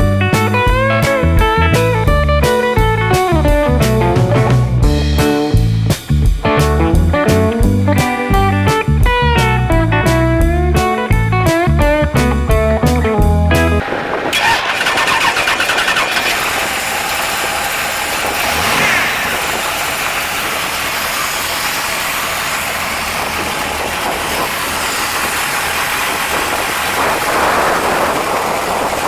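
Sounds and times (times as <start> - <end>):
car engine starting and revving: 13.8 - 28.9
car engine idling: 13.8 - 29.0.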